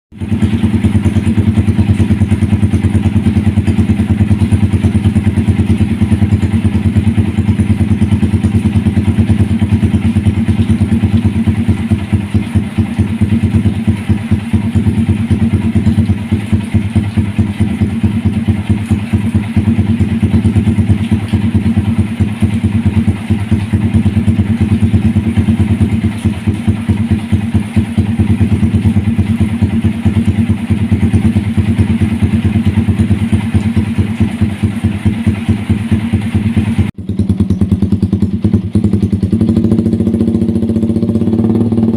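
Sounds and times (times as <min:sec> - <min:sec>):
motorcycle engine idling: 0:00.1 - 0:41.9.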